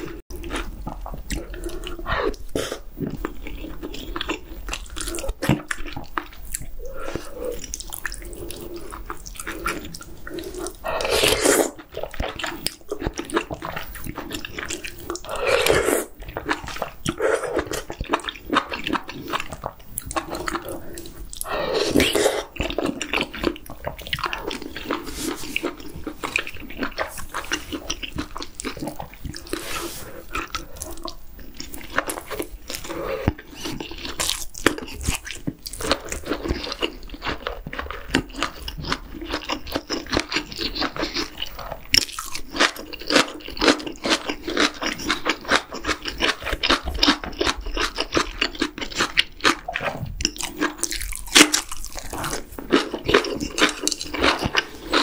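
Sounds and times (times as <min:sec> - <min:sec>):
wet chewing: 0:00.0 - 0:55.0
slurping noodles: 0:06.5 - 0:34.2, 0:44.0 - 0:55.0.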